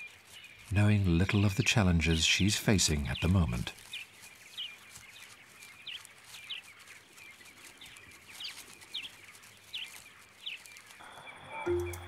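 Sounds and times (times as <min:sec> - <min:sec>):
bird calling with sharp high notes: 0:11.0 - 0:12.0.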